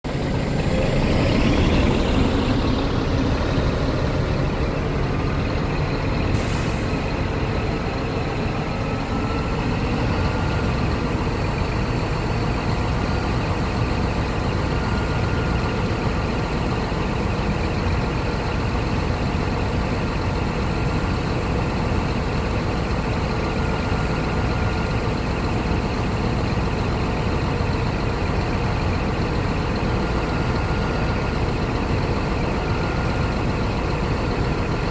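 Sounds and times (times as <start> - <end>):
diesel truck engine idling: 0.0 - 34.9
air brake hiss: 6.3 - 7.0.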